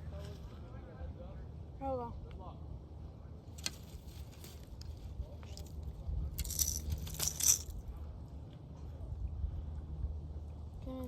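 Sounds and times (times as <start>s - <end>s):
fishing tackle clicks: 6.4s - 7.7s
metallic rattling: 6.4s - 7.8s.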